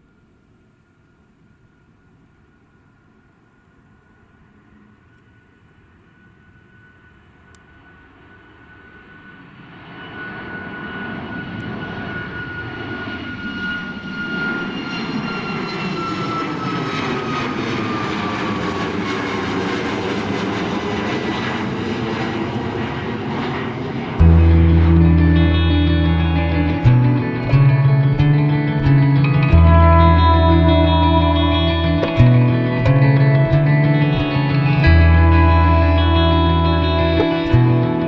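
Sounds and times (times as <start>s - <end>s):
jet airliner passing: 4.1s - 38.0s
high engine whine falling: 9.8s - 38.0s
music: 24.2s - 38.0s.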